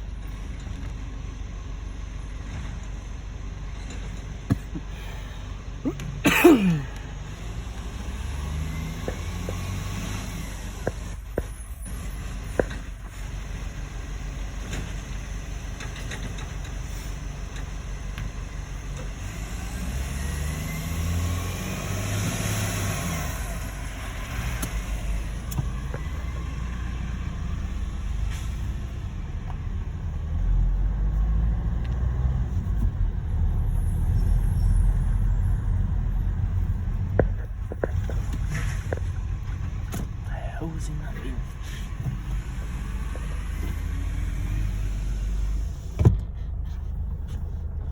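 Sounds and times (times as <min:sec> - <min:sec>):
vehicle engines rumbling: 0:00.0 - 0:47.9
vehicle passing: 0:07.2 - 0:12.7, 0:19.3 - 0:47.9.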